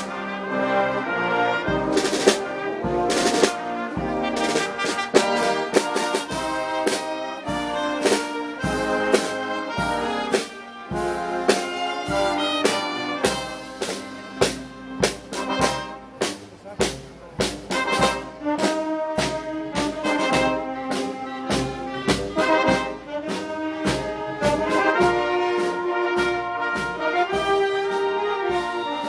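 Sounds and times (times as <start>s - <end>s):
trumpets and trombones: 0.0s - 29.0s
drum and cymbal strikes: 1.8s - 29.0s.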